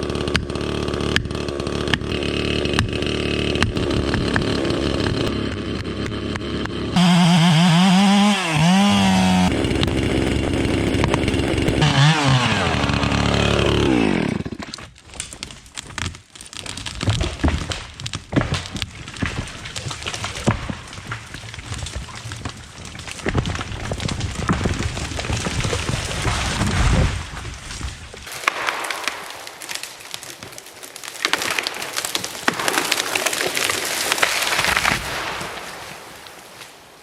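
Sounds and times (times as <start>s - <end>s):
chainsaw running and revving: 0.0s - 14.8s, 28.5s - 35.3s
tree cracking and crashing down: 0.0s - 37.0s.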